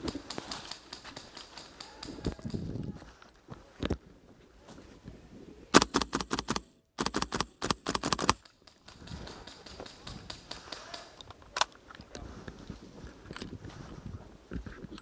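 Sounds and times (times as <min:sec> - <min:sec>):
airsoft gun firing: 0:05.8 - 0:11.1.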